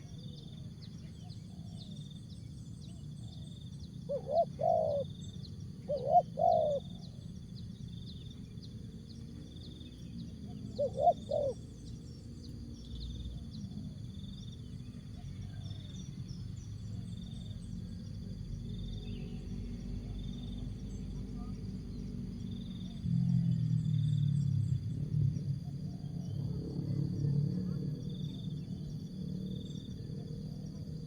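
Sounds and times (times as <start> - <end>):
dove cooing: 4.0 - 7.2, 10.4 - 11.9.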